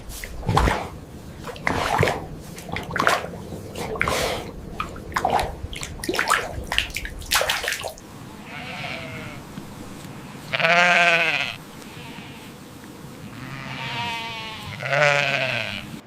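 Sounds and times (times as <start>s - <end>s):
water splashing: 0.0s - 16.0s
animal bleating: 8.3s - 9.6s, 10.3s - 12.6s, 13.2s - 16.0s.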